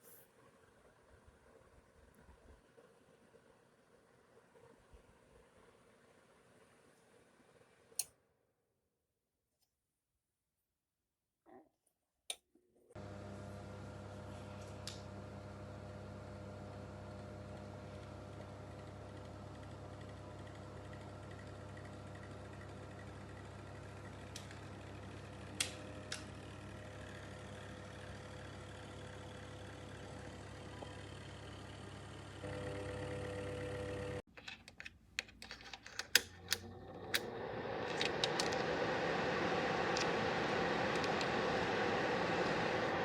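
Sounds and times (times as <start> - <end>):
space heater humming: 13.0 - 34.3, 36.0 - 43.0
heater fan blowing: 36.4 - 43.0.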